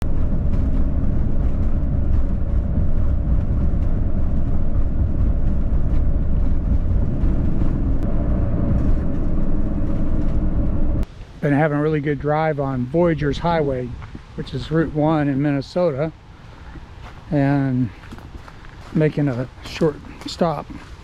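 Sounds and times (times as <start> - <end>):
car road and engine noise: 0.0 - 11.2.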